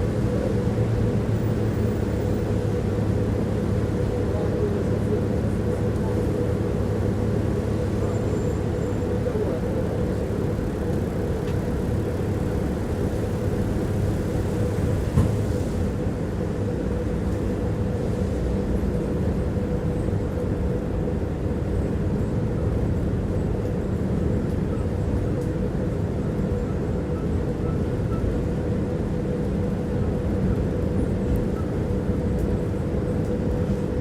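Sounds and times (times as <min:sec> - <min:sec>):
faint steady whine: 0:00.0 - 0:23.8
tram rumbling on rails: 0:00.0 - 0:34.0.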